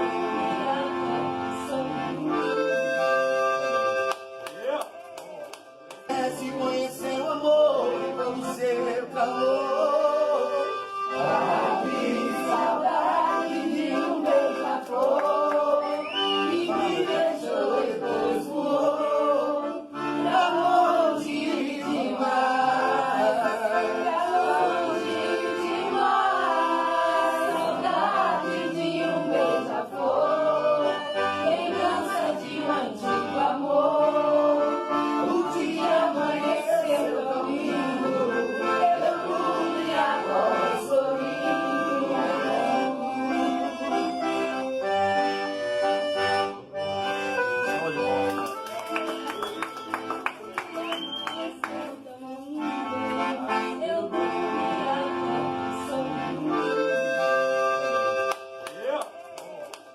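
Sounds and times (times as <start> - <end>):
group of people singing: 0.0 - 3.0, 6.1 - 44.4, 51.4 - 57.7
accordion: 0.0 - 59.9.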